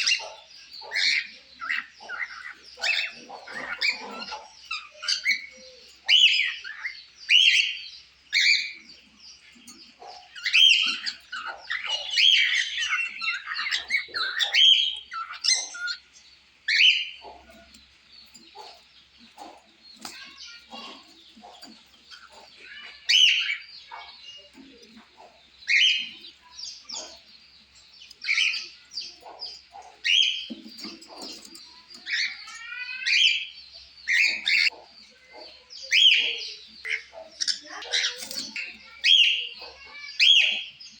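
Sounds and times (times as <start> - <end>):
soft bird chatter: 0.0 - 41.0.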